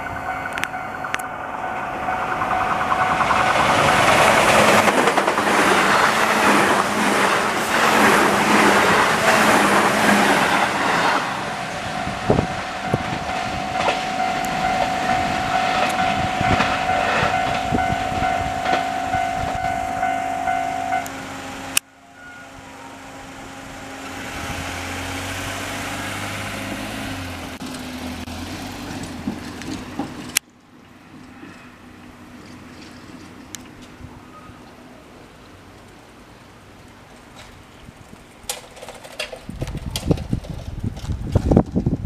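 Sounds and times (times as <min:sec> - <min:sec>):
steady high tone: 0:00.0 - 0:24.8
train rumble with low hum: 0:00.0 - 0:42.0
train wheels clattering over rail joints: 0:00.5 - 0:19.8, 0:28.5 - 0:31.6, 0:37.2 - 0:42.0.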